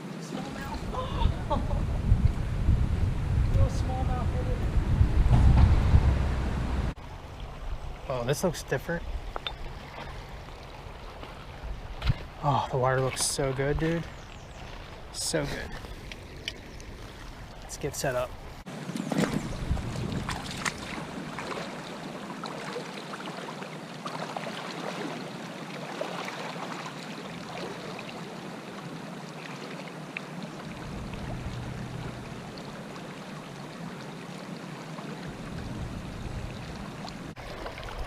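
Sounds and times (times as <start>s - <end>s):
creek water babbling: 0.0s - 5.0s, 5.8s - 38.0s
low rumble: 0.8s - 8.1s, 30.7s - 32.6s.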